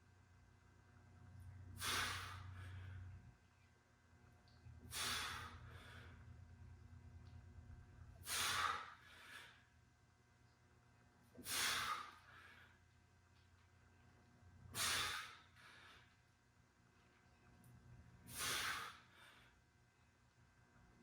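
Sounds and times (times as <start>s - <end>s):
man breathing out hard: 1.8s - 3.0s, 4.9s - 6.2s, 8.2s - 9.6s, 11.4s - 12.7s, 14.8s - 16.1s, 18.3s - 19.5s.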